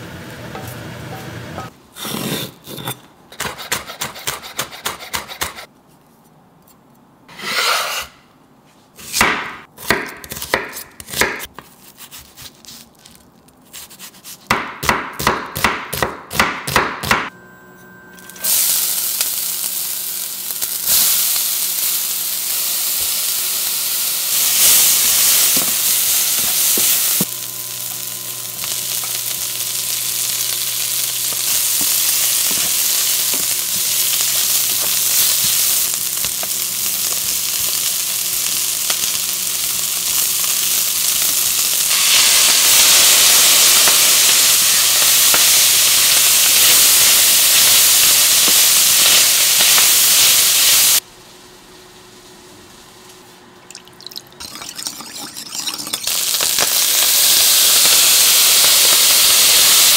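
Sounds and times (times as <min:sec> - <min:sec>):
food sizzling in a wok: 0:17.4 - 0:53.4, 0:55.2 - 0:59.9.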